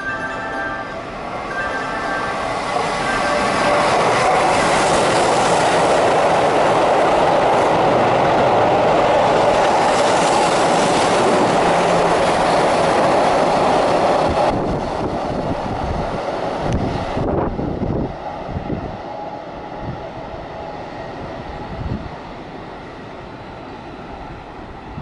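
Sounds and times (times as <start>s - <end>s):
train wheels rushing on rails: 0.0s - 25.0s.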